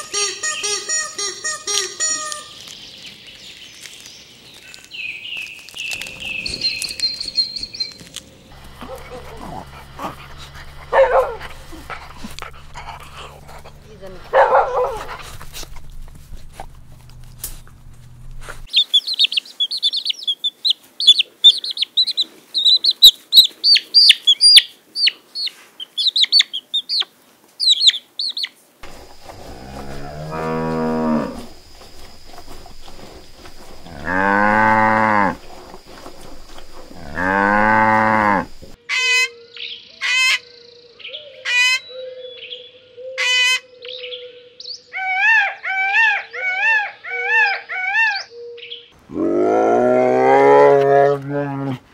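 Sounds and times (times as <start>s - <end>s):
cow mooing: 8.5s - 15.0s, 28.8s - 38.8s, 49.1s - 51.8s.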